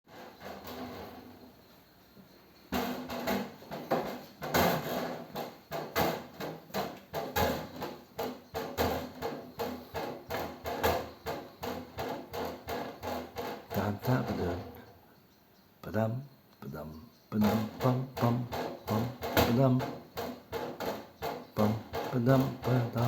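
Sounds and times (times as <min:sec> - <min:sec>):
drum beat: 0:17.4 - 0:23.0.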